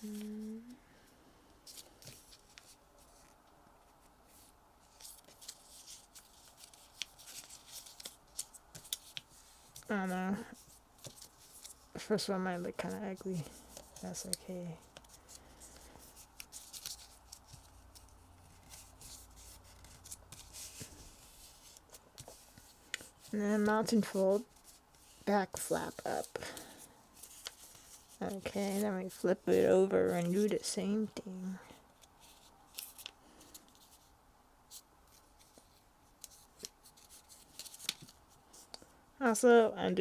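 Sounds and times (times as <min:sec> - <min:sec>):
paper rustling and scraping: 0:01.6 - 0:30.6, 0:34.7 - 0:38.7.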